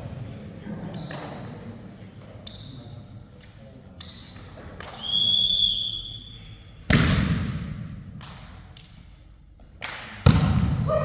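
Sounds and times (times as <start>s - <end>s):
referee's whistle: 5.0s - 6.8s
volleyball being struck: 6.9s - 7.7s, 10.2s - 11.0s.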